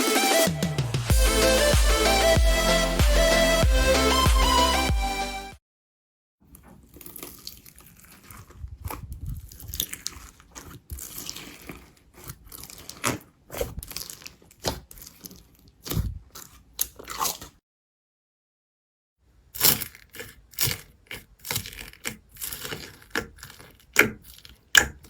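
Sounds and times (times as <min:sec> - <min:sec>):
slime crackling and popping: 0:06.9 - 0:17.5, 0:19.6 - 0:25.0.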